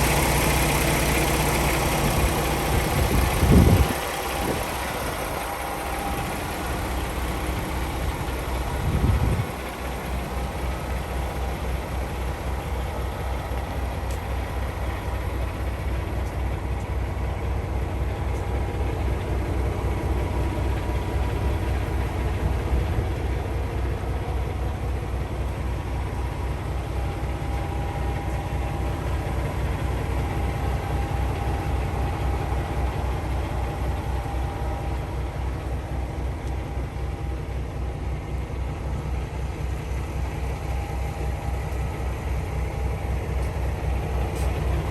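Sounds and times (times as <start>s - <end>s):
diesel truck engine idling: 0.0s - 44.9s.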